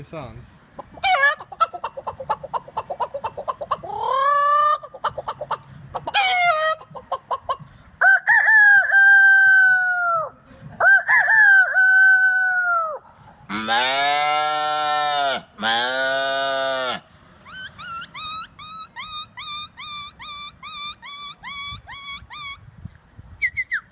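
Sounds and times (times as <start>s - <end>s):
man imitating chicken clucking: 0.8s - 22.6s
low drawn-out animal call: 9.0s - 22.6s.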